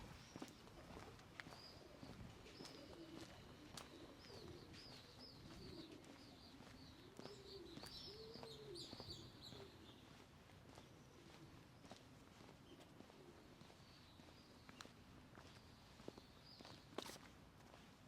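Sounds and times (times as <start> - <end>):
small birds chirping: 0.0 - 17.3
pigeons cooing: 0.8 - 10.0.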